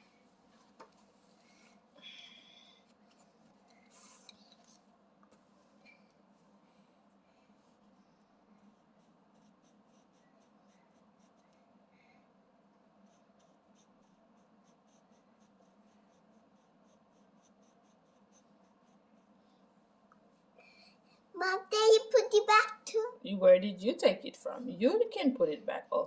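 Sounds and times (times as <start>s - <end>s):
low room hum: 0.0s - 26.0s
coloring tool scratching on paper: 8.6s - 11.6s, 13.0s - 19.4s.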